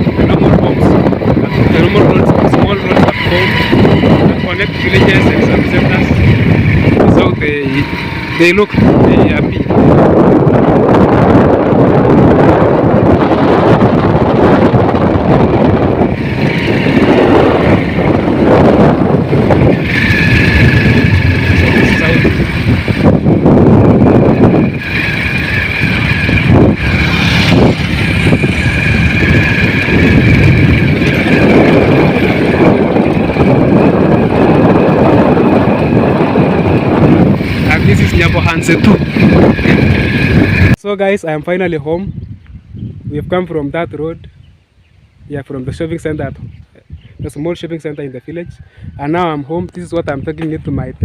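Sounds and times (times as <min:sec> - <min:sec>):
vehicle running noise: 0:00.0 - 0:40.8
wind buffeting microphone: 0:00.0 - 0:51.0.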